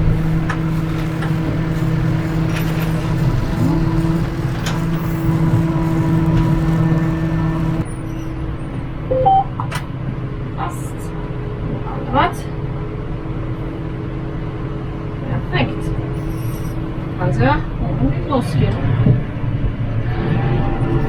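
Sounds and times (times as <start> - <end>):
tractor engine running: 0.0 - 7.8.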